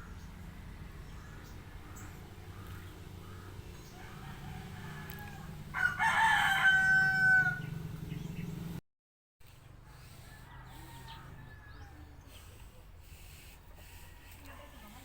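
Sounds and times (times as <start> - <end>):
rooster crowing: 3.4 - 7.8, 10.2 - 12.0.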